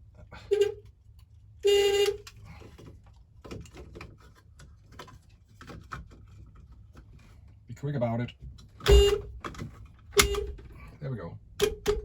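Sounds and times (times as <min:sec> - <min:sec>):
van horn honk: 0:00.4 - 0:00.8, 0:01.6 - 0:02.2, 0:08.9 - 0:09.3.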